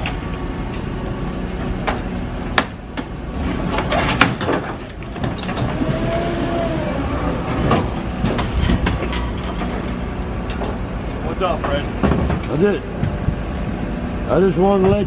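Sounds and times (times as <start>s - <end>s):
metal clanks and knocks: 2.6s - 5.8s, 7.5s - 13.3s.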